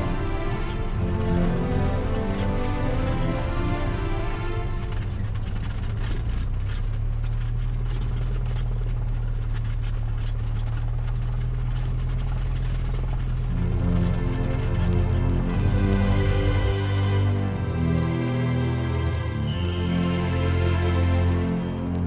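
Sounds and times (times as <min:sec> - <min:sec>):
aircraft engine drone: 0:00.0 - 0:06.6.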